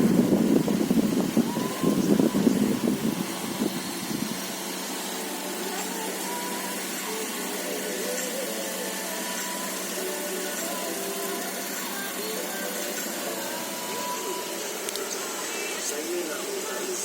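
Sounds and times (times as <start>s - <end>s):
faint voices: 10.2s - 17.0s.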